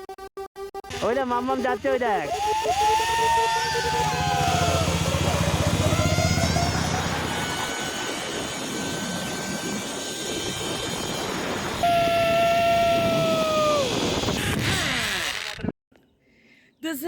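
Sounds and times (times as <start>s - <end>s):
zipline pulleys whining on cable: 2.0s - 15.7s
loud low whine: 2.3s - 14.3s.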